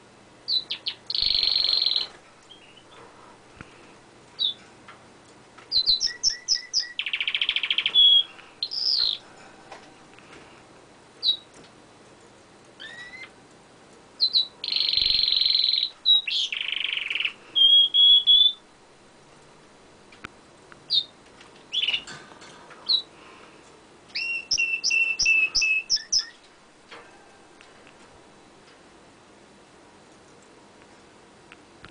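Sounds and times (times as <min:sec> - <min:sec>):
canary singing: 0:00.5 - 0:03.0, 0:04.4 - 0:04.6, 0:05.7 - 0:09.3, 0:11.2 - 0:11.6, 0:12.8 - 0:13.4, 0:14.2 - 0:18.7, 0:20.8 - 0:22.2, 0:22.8 - 0:23.1, 0:24.1 - 0:26.5.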